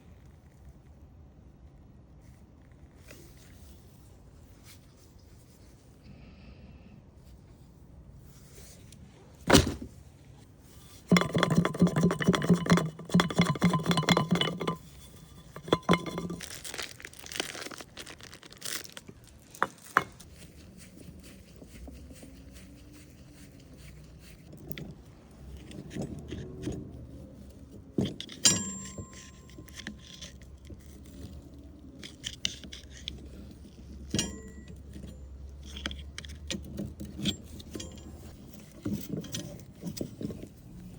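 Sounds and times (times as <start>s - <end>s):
rapid rattling: 11.0s - 17.2s
metal tools knocking and clinking: 11.1s - 17.0s, 24.6s - 40.5s.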